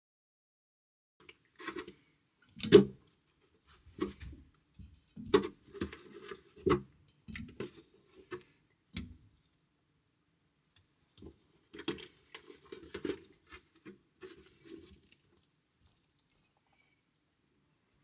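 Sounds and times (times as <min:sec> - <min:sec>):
knocks and clunks of handling: 0:03.8 - 0:09.2.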